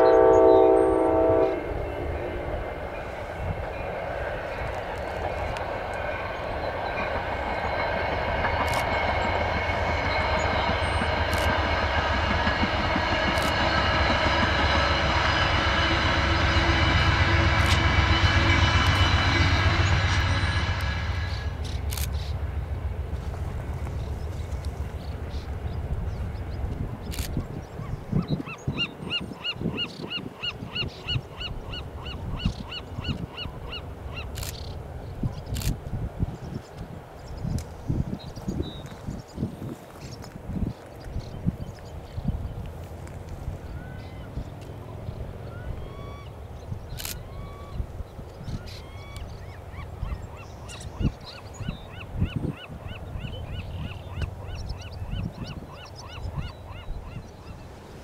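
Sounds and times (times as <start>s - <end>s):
passing train rumble: 0.0s - 58.0s.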